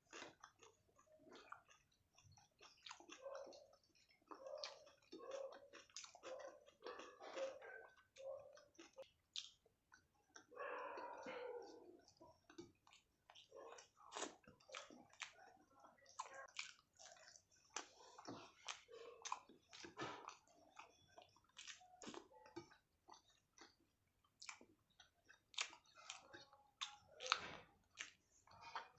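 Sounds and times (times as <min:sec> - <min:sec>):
wet chewing and lip smacks: 0:00.0 - 0:28.9.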